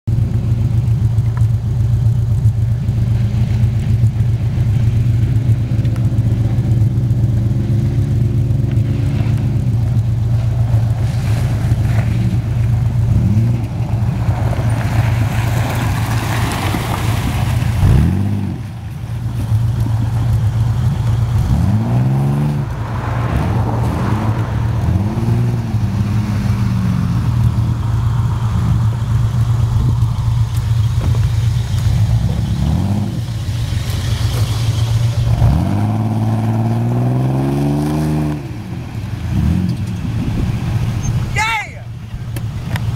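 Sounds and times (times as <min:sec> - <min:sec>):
engine revving: 0:02.7 - 0:41.3
rush of noise: 0:21.3 - 0:42.9.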